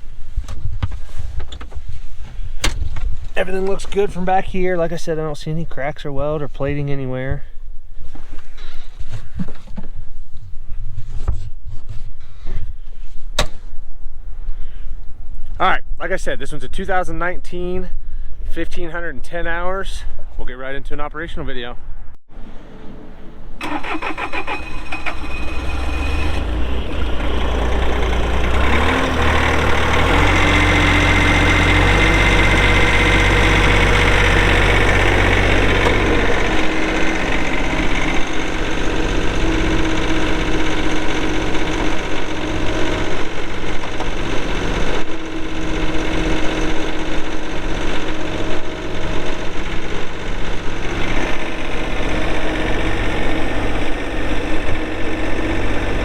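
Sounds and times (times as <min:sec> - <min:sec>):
diesel engine running: 0:23.6 - 0:56.0.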